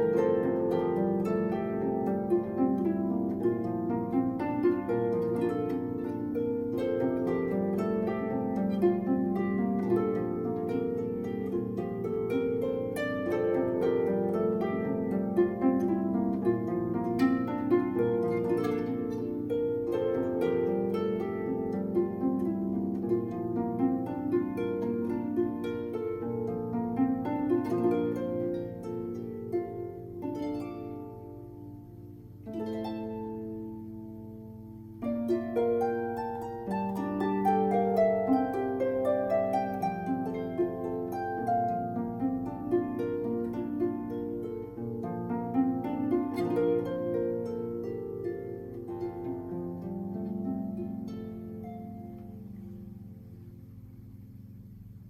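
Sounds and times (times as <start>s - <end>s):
harp playing: 0.0s - 55.0s.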